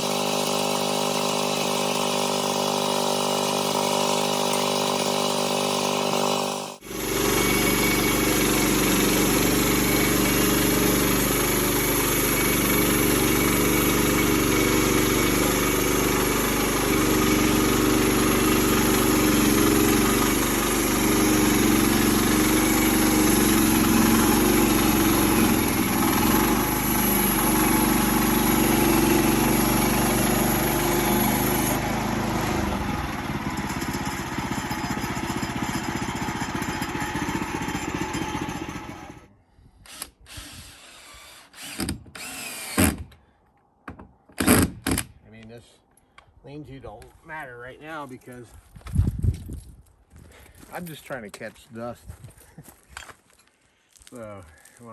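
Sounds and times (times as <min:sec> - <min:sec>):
engine running: 0:00.0 - 0:39.3.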